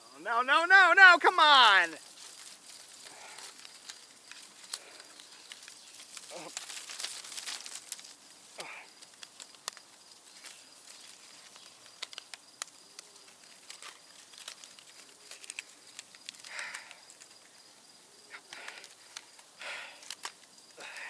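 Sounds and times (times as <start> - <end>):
sharp clicks and rustles: 2.0 - 17.7, 18.4 - 20.8
breathy puff: 19.6 - 20.1.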